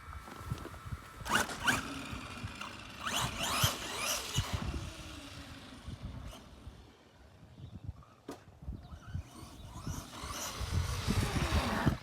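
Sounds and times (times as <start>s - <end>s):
electric motor whining: 1.2s - 7.2s, 8.8s - 12.0s.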